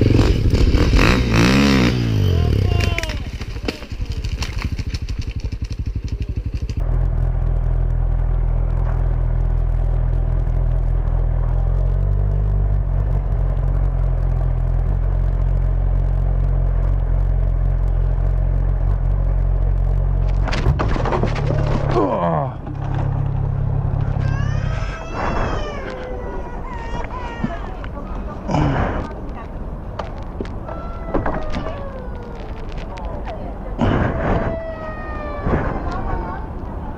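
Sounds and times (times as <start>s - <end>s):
motorcycle engine running: 0.0s - 24.6s.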